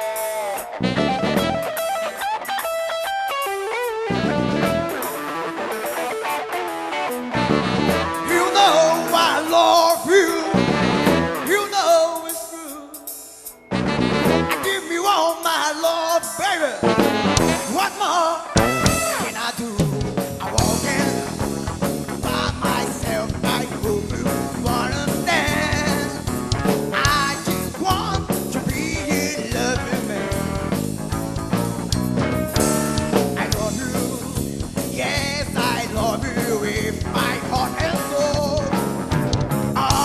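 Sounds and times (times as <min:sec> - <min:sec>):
drum kit: 0:00.0 - 0:40.0
instrumental blues band: 0:00.0 - 0:40.0.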